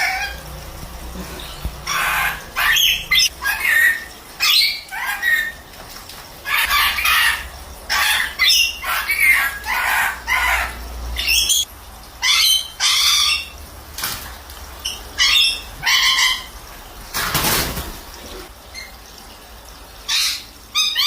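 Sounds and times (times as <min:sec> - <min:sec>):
parrot squawks: 0:00.0 - 0:00.4, 0:01.8 - 0:05.6, 0:06.4 - 0:13.5, 0:14.8 - 0:16.5
parrot flapping wings: 0:17.1 - 0:18.3.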